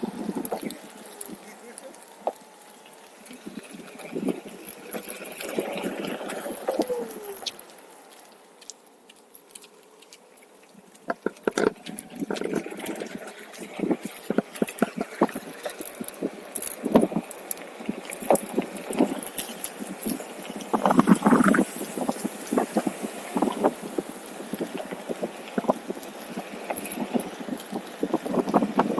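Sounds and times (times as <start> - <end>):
electric board rolling on trail: 0.0 - 28.9.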